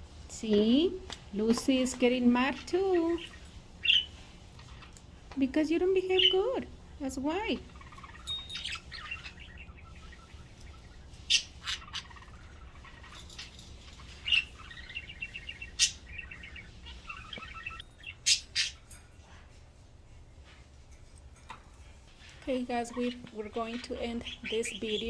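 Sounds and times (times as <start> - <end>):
budgerigars chirping and warbling: 0.5 - 19.0, 22.2 - 25.0
sharp loud bird chirps: 7.8 - 18.8.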